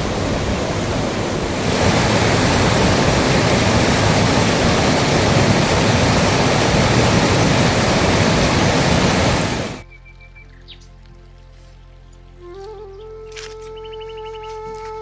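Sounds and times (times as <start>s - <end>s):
rushing water: 0.0s - 9.8s.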